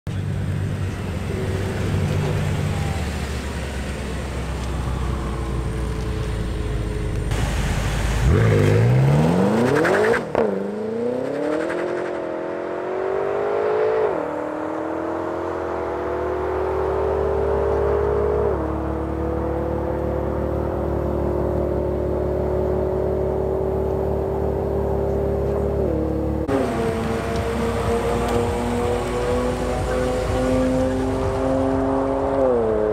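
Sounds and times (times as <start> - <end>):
car engine revving through gears: 8.2 - 32.9.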